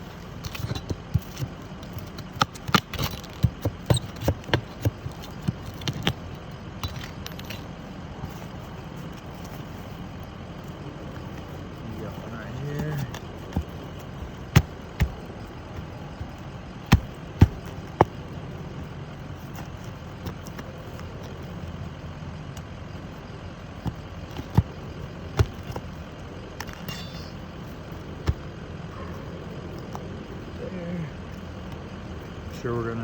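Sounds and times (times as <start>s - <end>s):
low background hum: 0.0s - 33.0s
nails driven into shingles: 0.4s - 7.8s, 12.8s - 18.4s.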